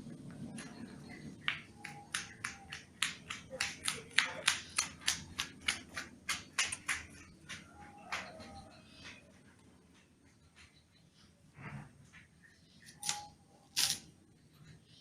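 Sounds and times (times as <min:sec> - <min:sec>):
bird harsh clicking notes: 0:01.4 - 0:09.2.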